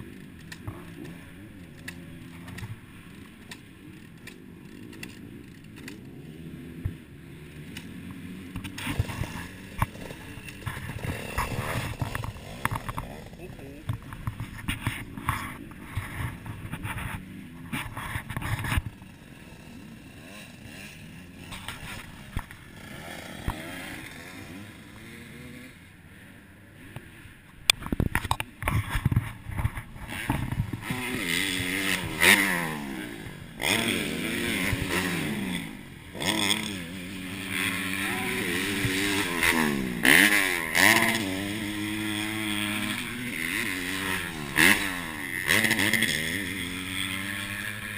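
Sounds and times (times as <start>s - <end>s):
dirt bike engine revving: 0.0s - 47.9s
engine clatter: 7.6s - 25.5s.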